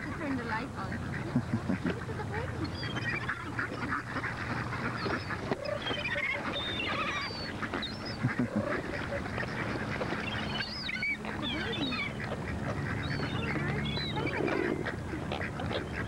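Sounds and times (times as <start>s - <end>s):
geese honking: 0.0s - 16.0s
gulls calling: 0.0s - 16.0s.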